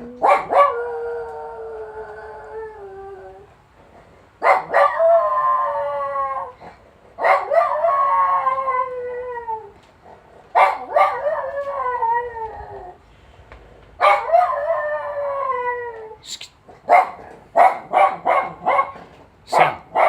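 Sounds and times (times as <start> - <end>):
dog howling: 0.0 - 3.5, 4.4 - 9.9, 10.6 - 13.0, 14.0 - 16.2.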